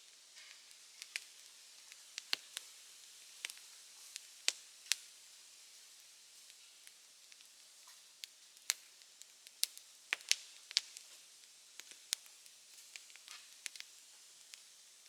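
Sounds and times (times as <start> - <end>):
faint hiss: 0.0 - 15.0
wood fire crackling: 0.0 - 15.0
sharp pops and snaps: 0.4 - 2.7, 3.4 - 5.1, 6.9 - 11.2, 11.8 - 14.7.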